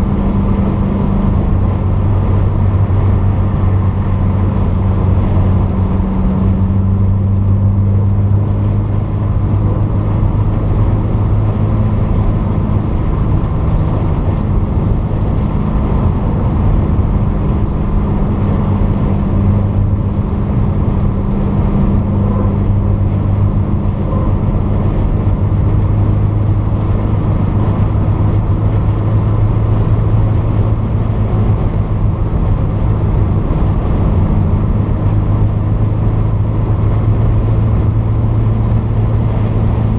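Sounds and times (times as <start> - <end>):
car engine droning: 0.0 - 39.9
road and wind noise: 0.0 - 39.9.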